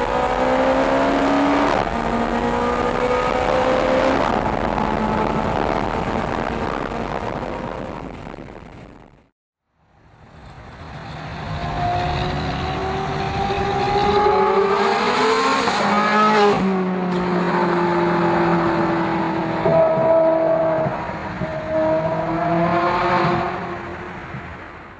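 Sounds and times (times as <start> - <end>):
car engine accelerating hard: 0.0 - 7.9, 10.4 - 24.4.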